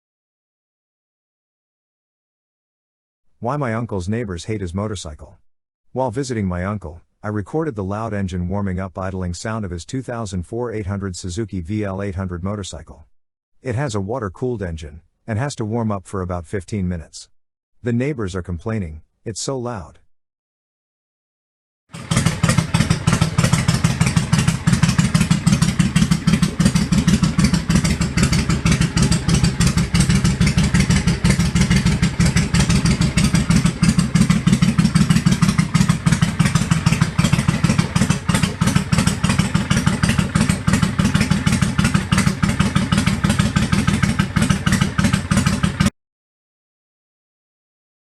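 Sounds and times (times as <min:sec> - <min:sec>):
motorcycle engine idling: 0:22.0 - 0:45.9.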